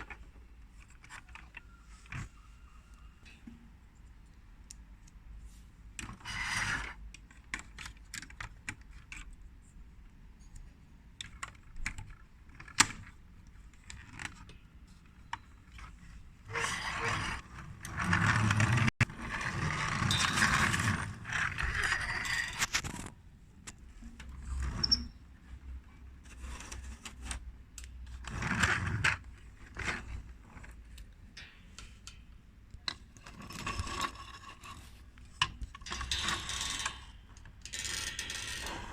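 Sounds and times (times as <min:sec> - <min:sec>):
toy parts rattling and scraping: 0:04.7 - 0:09.7, 0:10.4 - 0:23.1, 0:32.8 - 0:38.9.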